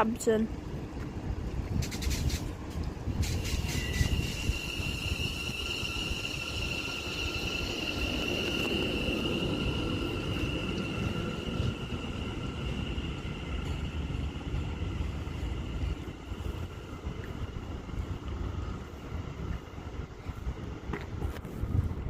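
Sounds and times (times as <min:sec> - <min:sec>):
train rumble: 0:00.0 - 0:22.0
electric train whine: 0:00.1 - 0:22.0.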